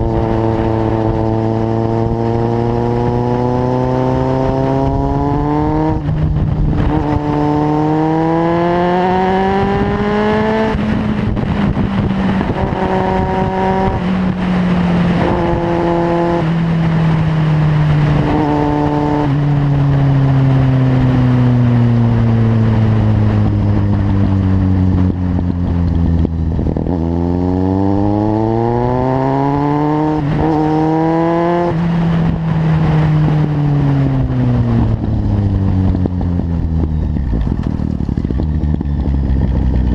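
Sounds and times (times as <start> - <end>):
motorcycle engine accelerating: 0.0 - 39.9
gear change: 34.6 - 39.9.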